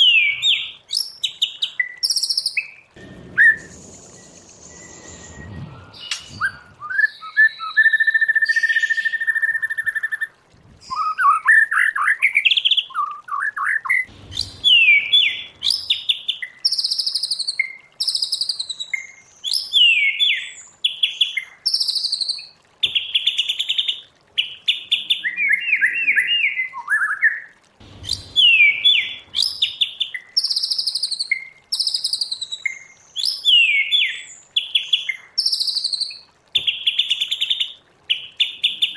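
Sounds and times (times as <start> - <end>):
songbird singing whistles: 3.4 - 10.2, 10.9 - 20.6, 24.9 - 27.5, 28.1 - 37.0.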